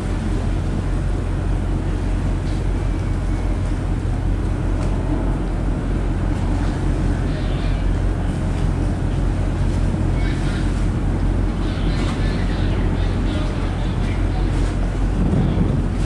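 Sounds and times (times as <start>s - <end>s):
rushing water: 0.0s - 16.0s
ship engines droning: 0.0s - 16.0s
wind noise: 14.8s - 16.0s.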